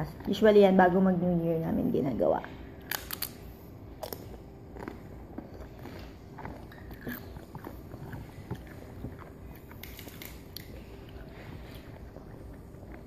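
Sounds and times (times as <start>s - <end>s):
person chewing crunchy chips: 2.8s - 13.0s.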